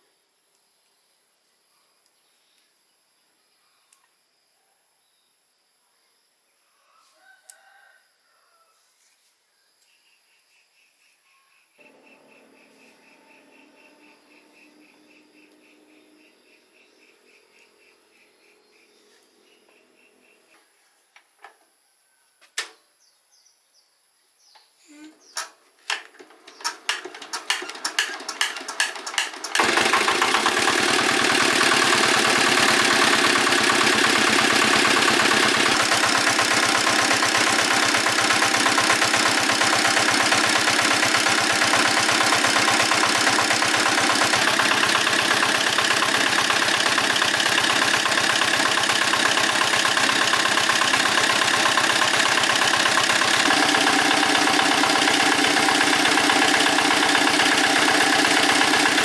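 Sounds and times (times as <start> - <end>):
generator engine cranking and running: 25.4 - 59.0.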